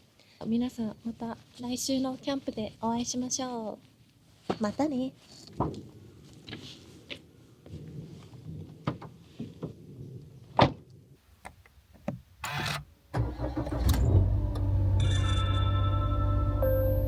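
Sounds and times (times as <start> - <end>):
car engine starting and idling: 12.4 - 17.0.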